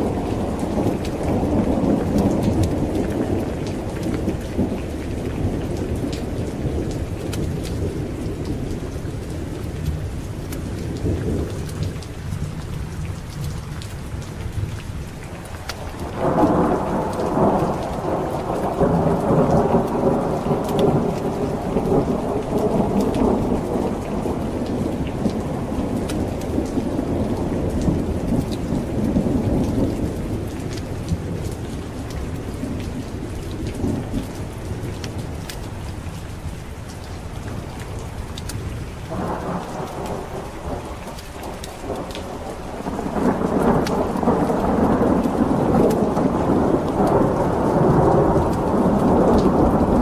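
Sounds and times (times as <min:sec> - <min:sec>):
heavy rain: 0:00.0 - 0:50.0
thunderclap rolling: 0:15.5 - 0:35.2, 0:39.1 - 0:50.0.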